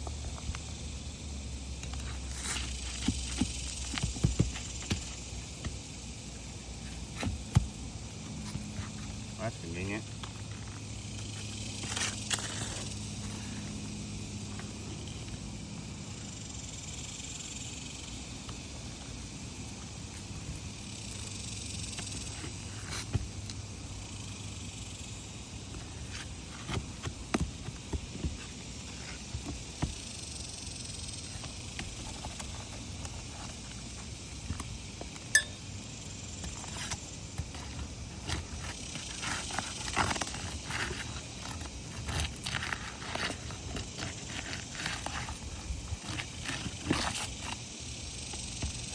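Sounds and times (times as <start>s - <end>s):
steady low hum: 0.0s - 48.9s
shingles crackling and scraping: 6.7s - 15.3s, 36.4s - 47.8s.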